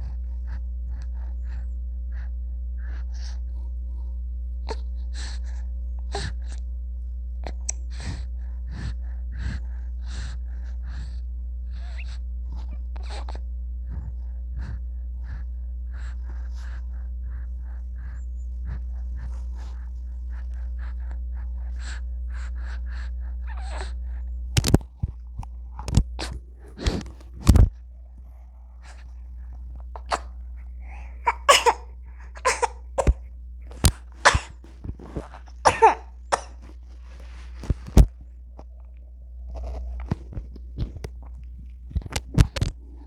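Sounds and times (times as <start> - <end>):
steady low hum: 0.0 - 43.0
baby gasping and squeaking: 30.0 - 33.2, 34.2 - 34.6, 35.3 - 36.6
baby sneezing: 30.0 - 33.2, 34.2 - 34.6, 35.3 - 36.7.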